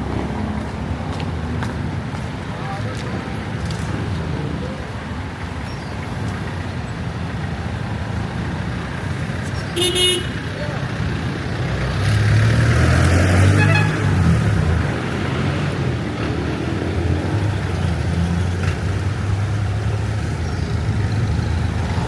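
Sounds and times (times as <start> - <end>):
traffic drone: 0.0 - 22.0
vehicle engine rumbling: 0.0 - 22.0.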